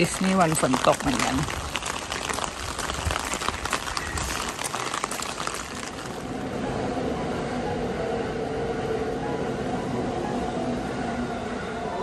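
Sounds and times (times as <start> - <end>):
rain pattering: 0.0 - 6.8
train running hum: 5.9 - 12.0.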